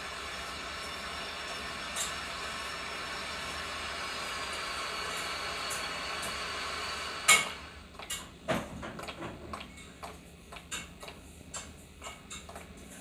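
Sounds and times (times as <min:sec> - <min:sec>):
train hissing and humming: 0:00.0 - 0:07.8.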